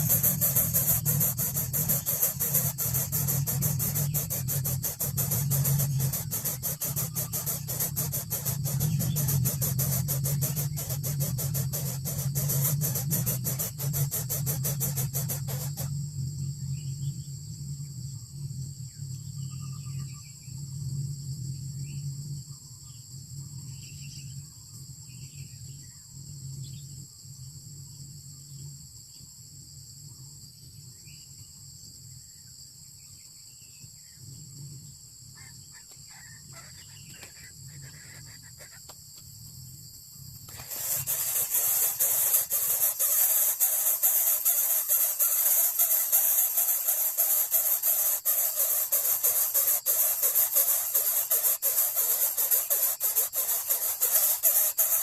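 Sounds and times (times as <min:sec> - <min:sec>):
bird chirps: 0:00.0 - 0:15.9, 0:35.4 - 0:38.9, 0:40.5 - 0:55.0
loud steady hiss: 0:00.0 - 0:16.0, 0:40.4 - 0:55.0
high-pitched hiss: 0:00.0 - 0:16.1, 0:40.3 - 0:55.0.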